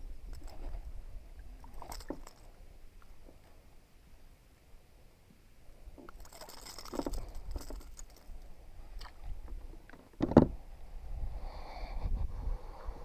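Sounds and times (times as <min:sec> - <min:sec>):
handling clicks and rustles: 0:06.0 - 0:08.5.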